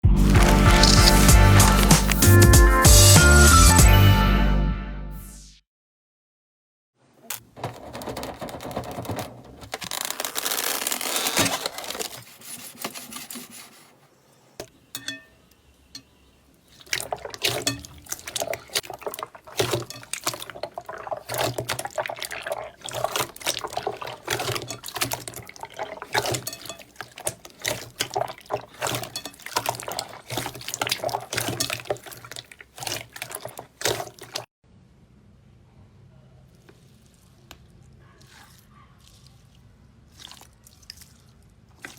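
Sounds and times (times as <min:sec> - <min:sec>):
slime squelching and clicking: 0:00.3 - 0:02.3, 0:16.8 - 0:34.5.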